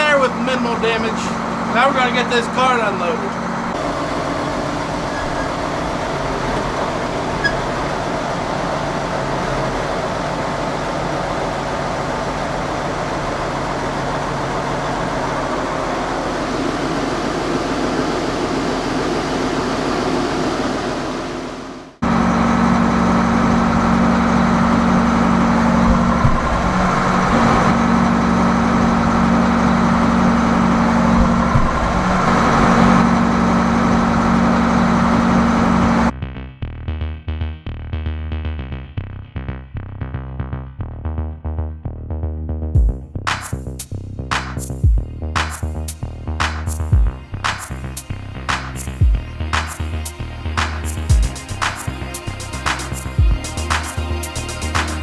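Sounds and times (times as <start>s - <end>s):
tractor engine running: 0.0s - 36.1s, 42.8s - 55.0s
steady engine drone: 0.0s - 36.2s, 42.2s - 55.0s.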